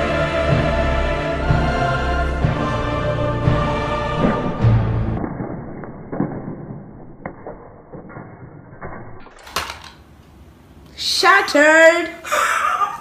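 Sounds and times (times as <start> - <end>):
music: 0.0 - 5.2
crayons rattling: 9.4 - 10.0.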